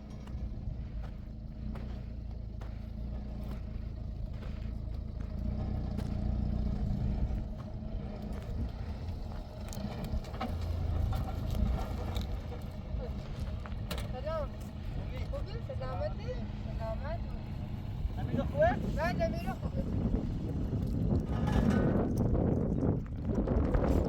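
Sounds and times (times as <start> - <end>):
engine humming: 0.0 - 24.0
light clatters: 20.7 - 24.0.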